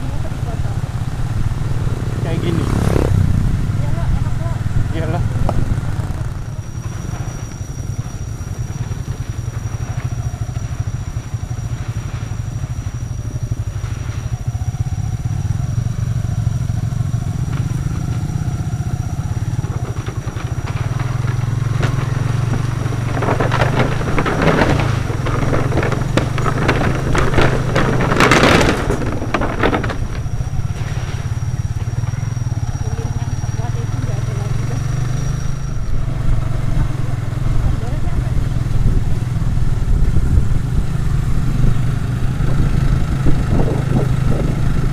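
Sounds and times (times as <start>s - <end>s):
small motorcycle engine running: 0.0s - 44.9s
rushing bursts: 19.2s - 34.8s.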